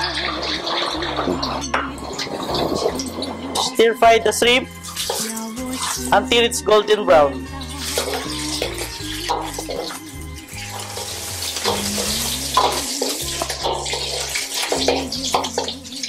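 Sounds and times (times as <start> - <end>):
ladle scraping and knocking pan: 0.0 - 3.9
background music: 0.0 - 16.0
shrimp sizzling in a wok: 7.6 - 16.0.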